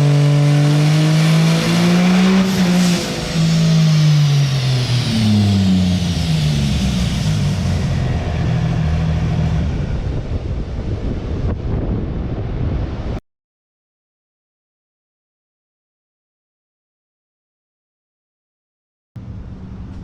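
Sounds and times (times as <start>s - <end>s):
high whine: 0.4s - 13.2s
diesel engine slowing down: 0.9s - 13.0s, 19.2s - 20.0s.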